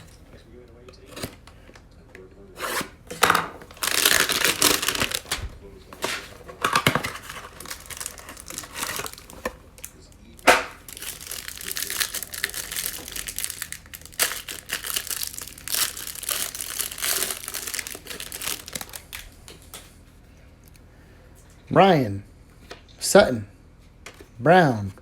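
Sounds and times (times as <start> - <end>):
cardboard tearing: 2.6 - 5.4, 6.0 - 19.2
plastic wrapping crinkling: 3.2 - 19.9.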